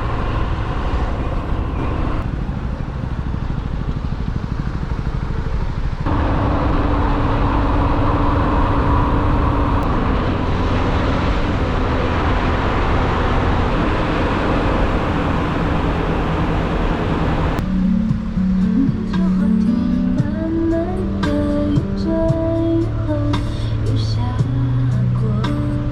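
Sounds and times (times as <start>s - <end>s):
motor scooter engine drone: 0.0s - 25.9s
wind and road noise: 0.0s - 25.9s.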